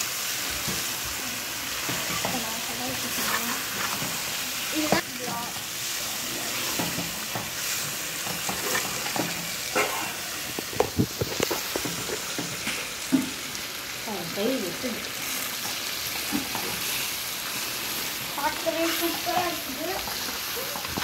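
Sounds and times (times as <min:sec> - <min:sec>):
chicken sizzling in a pan: 0:00.0 - 0:21.0
spatula scraping and knocking pan: 0:01.7 - 0:05.6, 0:06.4 - 0:13.4, 0:15.6 - 0:17.1, 0:17.8 - 0:21.0.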